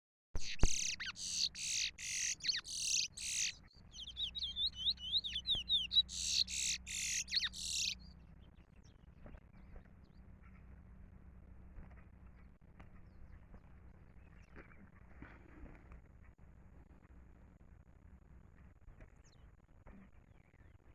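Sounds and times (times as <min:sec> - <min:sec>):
songbird singing: 0:00.4 - 0:10.4.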